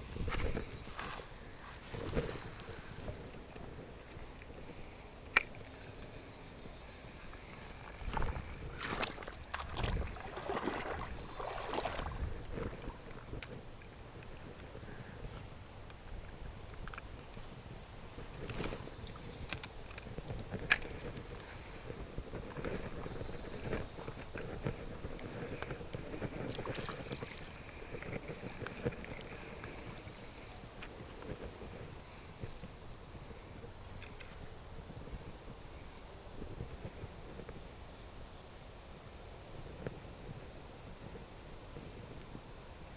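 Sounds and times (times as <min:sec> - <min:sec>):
insect drone: 0:00.0 - 0:42.9
water sloshing: 0:07.2 - 0:13.9, 0:20.6 - 0:30.6.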